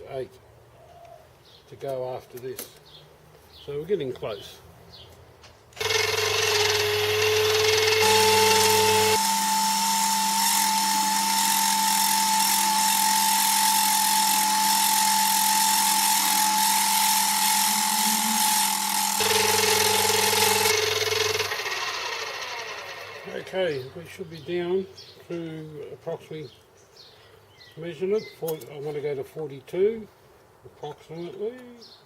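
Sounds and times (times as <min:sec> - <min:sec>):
metal lathe whining: 0:05.8 - 0:23.5.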